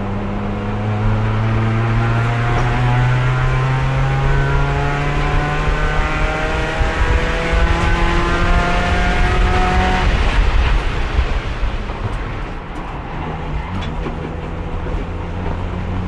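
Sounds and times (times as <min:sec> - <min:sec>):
race car engine: 0:00.0 - 0:16.0.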